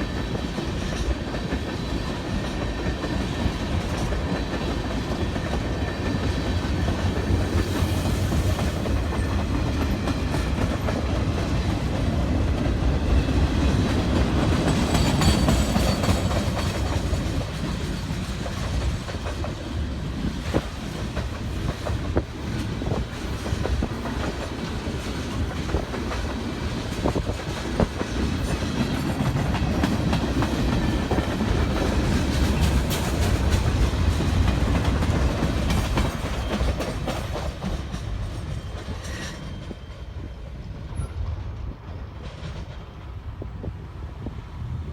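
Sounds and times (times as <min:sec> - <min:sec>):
freight train rumbling: 0:00.0 - 0:44.9
wheels clicking over rail joints: 0:20.4 - 0:43.2.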